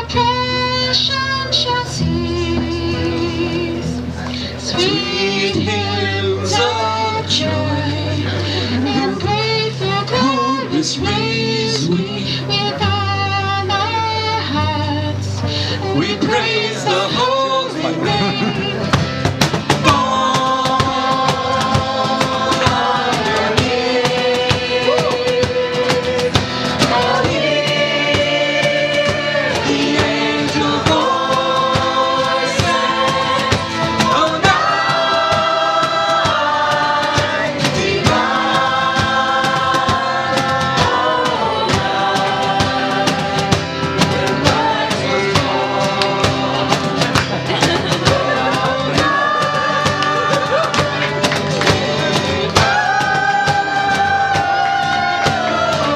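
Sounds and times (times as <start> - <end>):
long held sung or played notes: 19.7 - 55.9.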